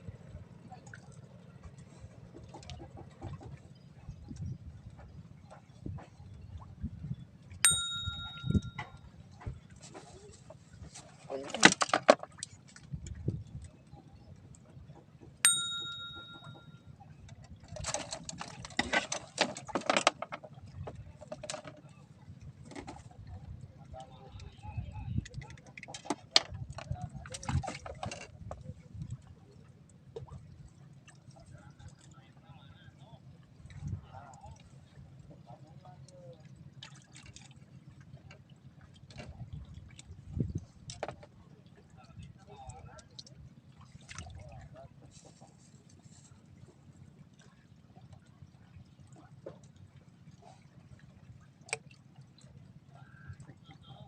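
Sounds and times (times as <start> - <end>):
small metal bell ding: 7.6 - 9.0, 15.5 - 16.8
rustling and clattering handling: 17.7 - 20.5.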